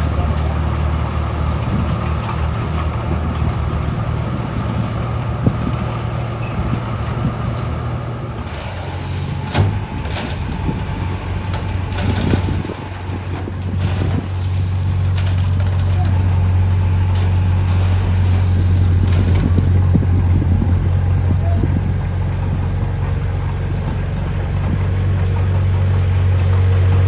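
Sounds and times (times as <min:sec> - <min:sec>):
heavy diesel engine running: 0:00.0 - 0:27.0
hiss: 0:08.7 - 0:09.8, 0:18.0 - 0:19.0.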